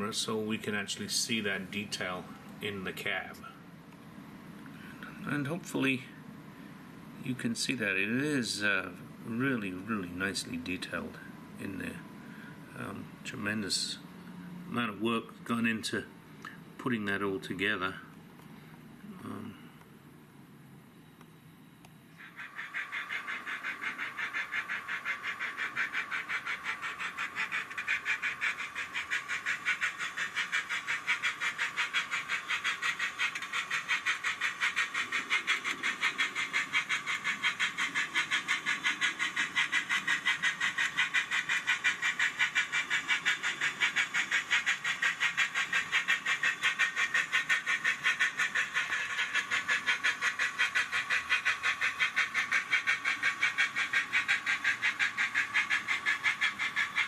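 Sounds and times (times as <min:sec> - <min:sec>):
model steam engine chuffing: 0:22.2 - 0:57.0.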